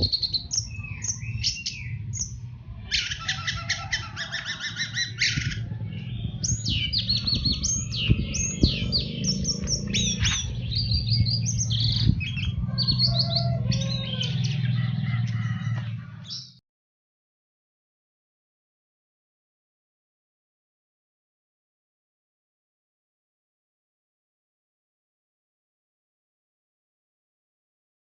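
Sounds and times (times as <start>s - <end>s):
thrush singing: 0.0s - 16.6s.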